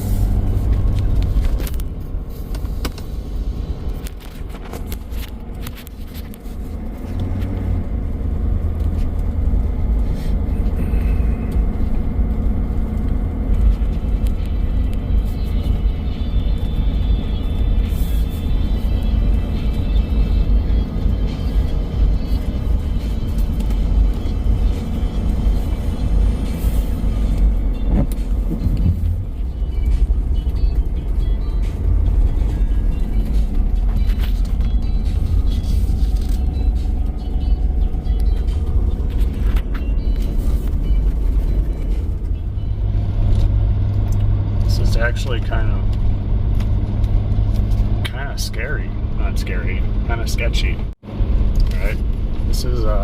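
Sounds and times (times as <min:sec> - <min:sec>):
truck driving through snow: 0:00.0 - 0:53.0
music playing: 0:13.6 - 0:51.9.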